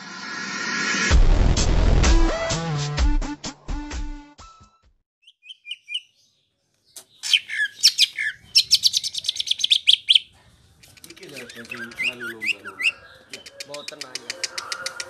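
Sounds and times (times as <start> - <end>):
bird whistles and fast trill: 5.2 - 6.1, 7.2 - 10.3
bird chirps: 5.2 - 15.0.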